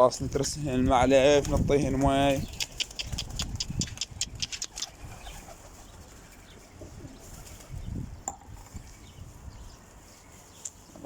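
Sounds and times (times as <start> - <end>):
pigeons cooing: 2.3 - 8.1.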